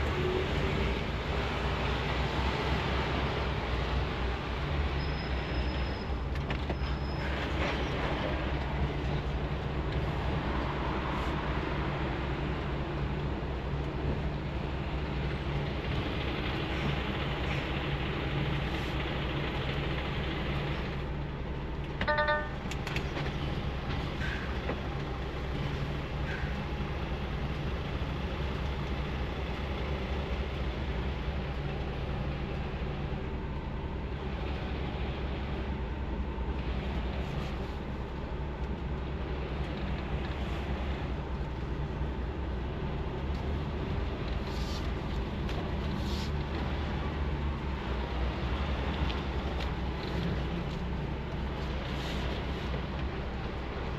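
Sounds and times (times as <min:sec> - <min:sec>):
road noise: 0:00.0 - 0:53.9
truck engine running: 0:11.4 - 0:53.9
short electronic beep: 0:22.0 - 0:22.6.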